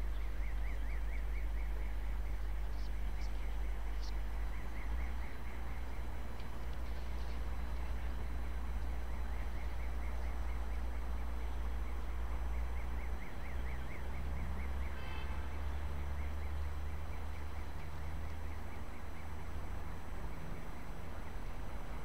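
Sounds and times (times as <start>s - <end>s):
steady low rumble: 0.0s - 14.2s.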